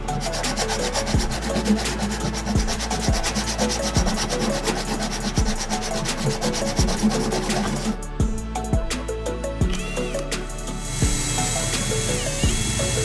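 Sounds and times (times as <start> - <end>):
blade rubbing on sharpening stone: 0.1 - 8.0.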